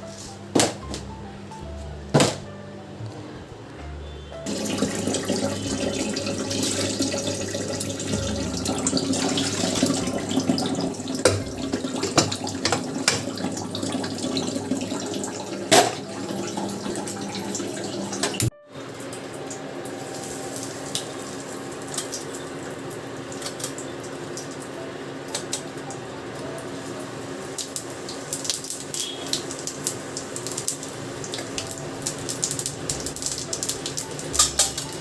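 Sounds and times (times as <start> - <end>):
tap water running into sink: 4.5 - 24.7, 27.5 - 35.0.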